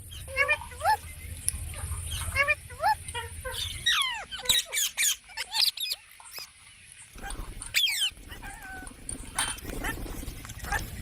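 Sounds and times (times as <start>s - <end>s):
parrots squawking: 1.7s - 6.5s, 7.2s - 10.8s.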